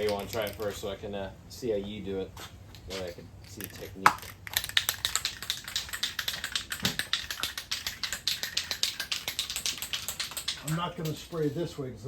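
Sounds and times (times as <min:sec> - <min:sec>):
spray can ball rattling: 0:00.0 - 0:00.8, 0:03.0 - 0:11.6.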